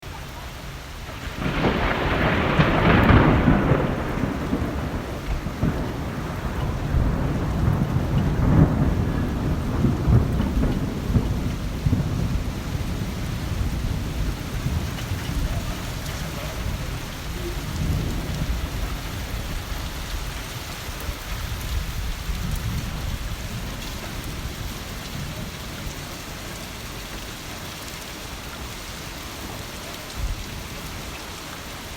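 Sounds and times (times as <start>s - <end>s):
steady rain: 0.0s - 31.9s
thunder rumbling: 0.1s - 27.6s.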